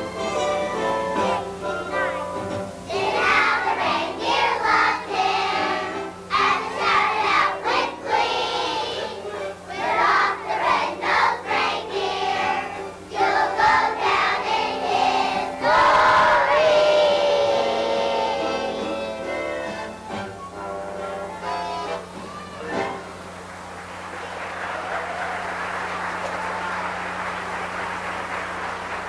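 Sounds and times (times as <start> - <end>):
instrumental accompaniment: 0.0 - 23.7
children's choir singing: 2.8 - 20.3.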